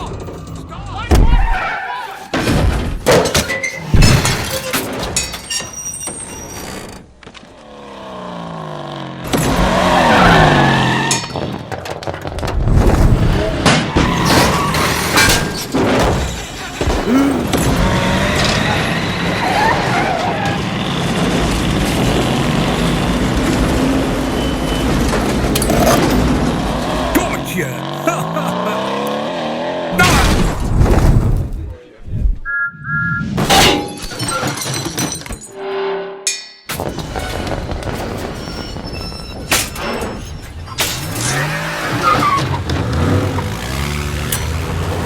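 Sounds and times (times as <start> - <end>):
vehicle engine noise: 16.7 - 30.0, 41.0 - 45.0
crashes and impacts: 30.0 - 31.7.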